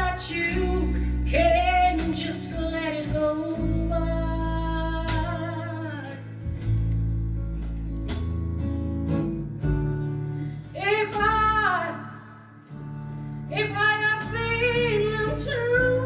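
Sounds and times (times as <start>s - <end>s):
sustained bass line: 0.0s - 5.8s
guitar: 0.0s - 16.0s.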